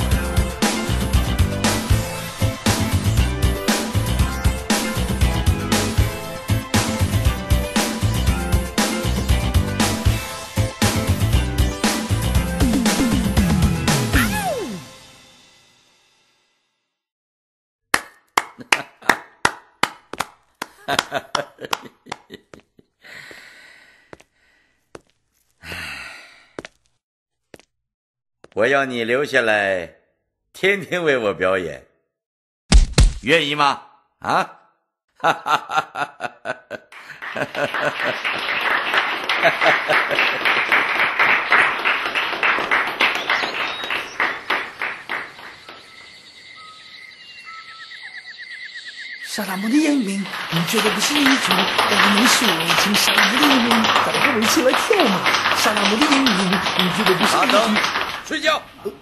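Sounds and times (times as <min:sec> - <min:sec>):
hand clapping: 0:17.9 - 0:22.4, 0:37.0 - 0:45.8, 0:50.2 - 0:58.4
breathy rush and sigh: 0:25.6 - 0:26.6
faint high chirping calls: 0:43.2 - 0:49.8.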